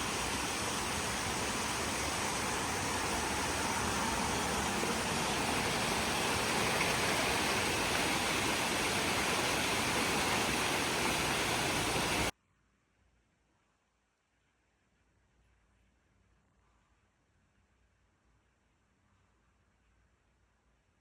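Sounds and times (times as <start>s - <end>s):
steady rushing noise: 0.0s - 12.3s.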